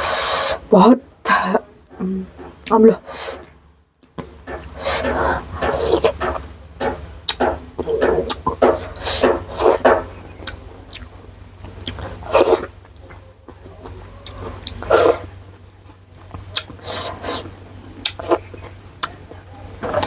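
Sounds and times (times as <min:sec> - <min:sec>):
steady low hum: 0:00.0 - 0:20.0
wet chewing and slurping: 0:04.6 - 0:15.4, 0:16.2 - 0:20.0.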